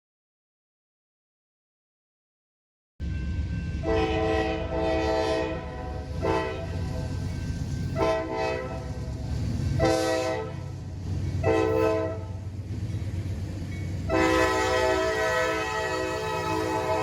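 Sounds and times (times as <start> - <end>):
locomotive air horn blasts: 3.8 - 7.1, 8.0 - 8.9, 9.8 - 10.7, 11.4 - 12.4, 14.1 - 17.0
diesel engine rumble: 5.3 - 17.0.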